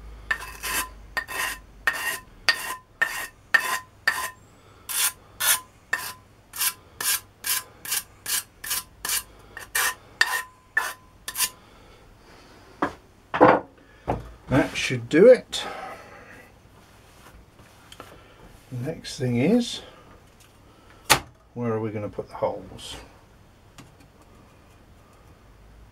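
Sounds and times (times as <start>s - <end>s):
hand file stroking steel: 0.3s - 11.6s.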